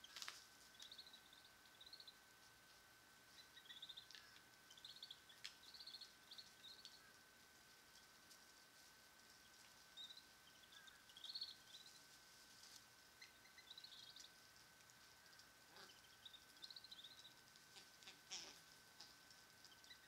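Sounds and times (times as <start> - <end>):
thin steady whine: 0.0 - 20.0
bird chirps in trilled clusters: 3.4 - 7.2, 9.4 - 12.0, 13.1 - 14.4, 15.2 - 17.4, 19.6 - 20.0.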